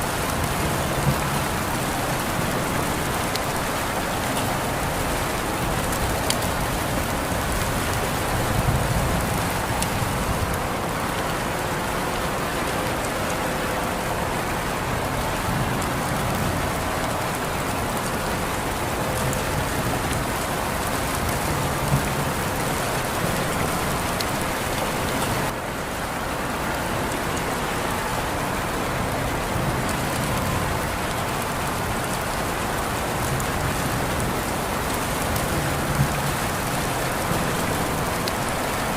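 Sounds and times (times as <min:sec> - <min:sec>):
rain pattering on surfaces: 0:00.0 - 0:38.9.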